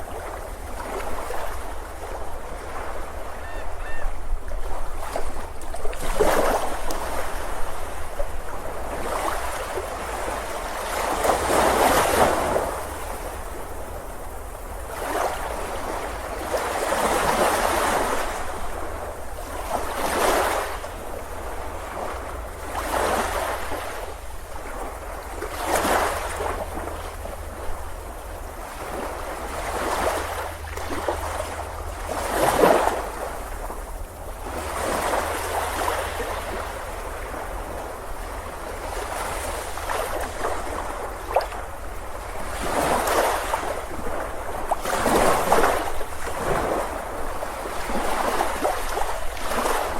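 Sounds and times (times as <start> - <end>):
surf breaking on a beach: 0.0 - 27.8, 28.4 - 49.9.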